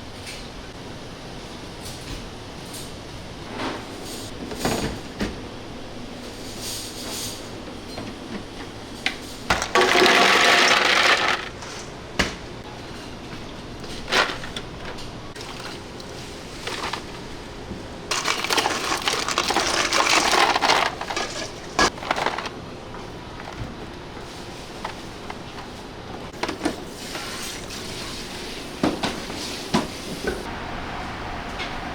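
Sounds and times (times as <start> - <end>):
scraping and rustling: 13.8 - 17.5, 18.1 - 22.6.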